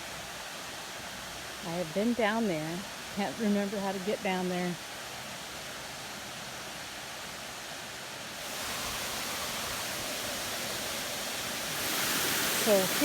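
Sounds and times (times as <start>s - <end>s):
waterfall rushing: 8.2s - 13.0s.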